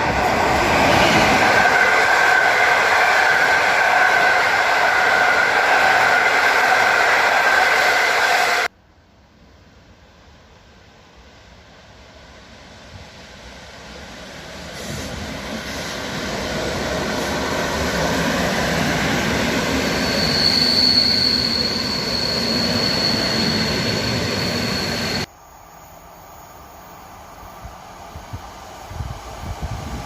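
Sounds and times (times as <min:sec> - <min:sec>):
train running on rails: 0:00.0 - 0:08.7, 0:09.4 - 0:30.0
high wheel squeal: 0:18.4 - 0:25.3.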